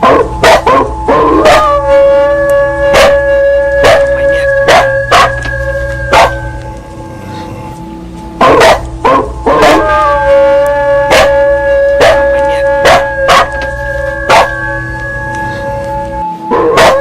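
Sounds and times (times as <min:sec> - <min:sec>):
temple bell ringing: 0:00.0 - 0:17.0.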